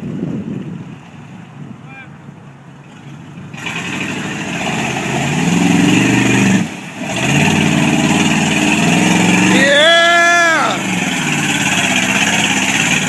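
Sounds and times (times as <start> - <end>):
monster truck engine accelerating: 3.5 - 13.0.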